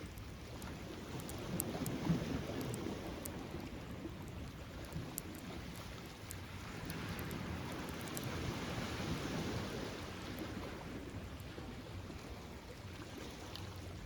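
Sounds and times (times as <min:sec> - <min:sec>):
wind: 0:00.0 - 0:14.0
bonfire crackling and popping: 0:00.1 - 0:08.5.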